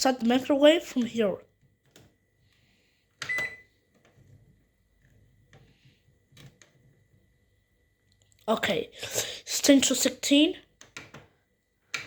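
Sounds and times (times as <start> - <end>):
microwave low hum: 0.0 - 12.0.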